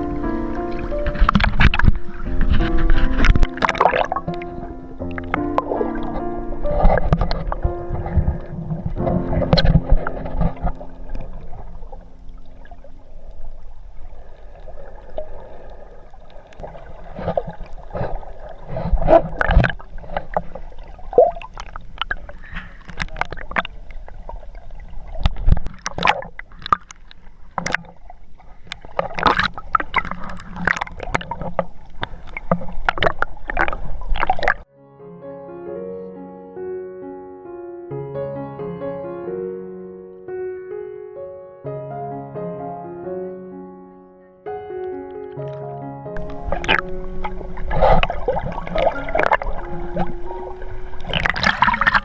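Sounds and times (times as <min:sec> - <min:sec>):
water splashing around boat: 0:00.0 - 0:34.7, 0:46.2 - 0:52.0
soft piano music: 0:00.0 - 0:52.0.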